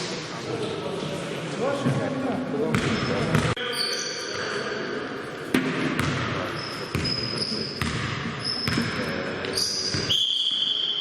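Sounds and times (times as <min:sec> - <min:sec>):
shoe squeaks: 0:02.8 - 0:05.0, 0:06.5 - 0:11.0
basketball dribbling: 0:06.0 - 0:06.3, 0:07.8 - 0:09.0.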